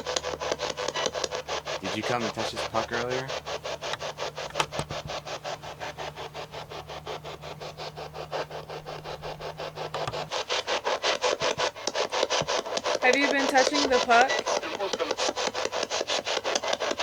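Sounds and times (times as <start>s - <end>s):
choppy bursts of radio static: 1.8s - 3.4s, 13.1s - 15.3s.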